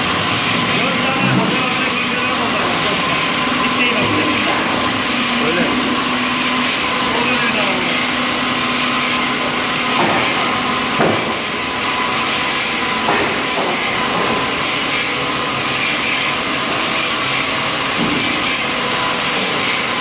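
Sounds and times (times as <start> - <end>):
log saw cutting wood: 0.0 - 20.0.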